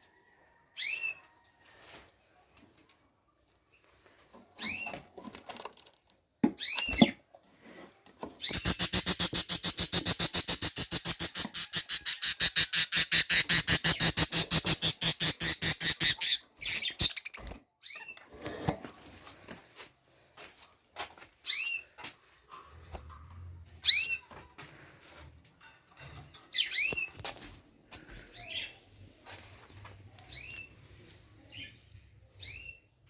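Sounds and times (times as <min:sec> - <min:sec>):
bird rasping chatter: 0:08.4 - 0:18.0
birds chirping: 0:08.4 - 0:18.3, 0:25.9 - 0:27.2, 0:28.0 - 0:28.9.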